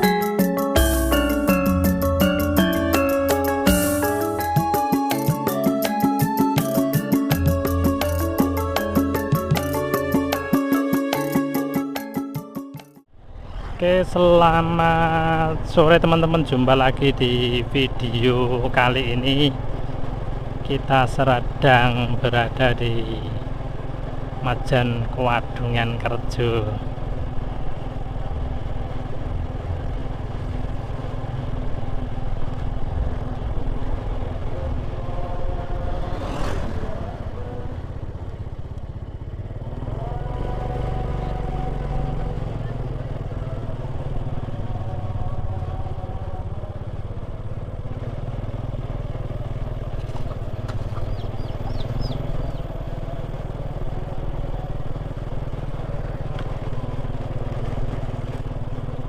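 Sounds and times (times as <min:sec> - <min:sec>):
motorcycle engine rumble: 0:13.3 - 0:59.0.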